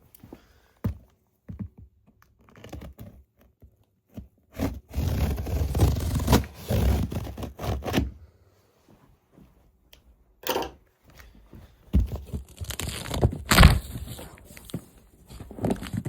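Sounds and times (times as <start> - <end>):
packaging scrapes and knocks: 12.0 - 16.0
packaging tearing and rustling: 12.3 - 16.0.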